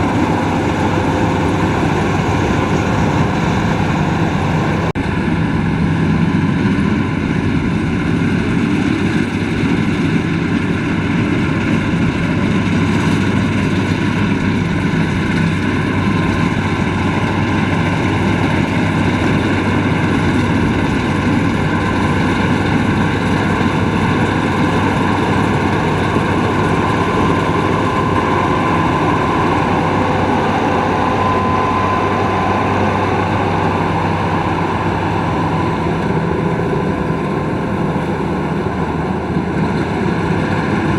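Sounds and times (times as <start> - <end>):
combine harvester humming: 0.0 - 40.9.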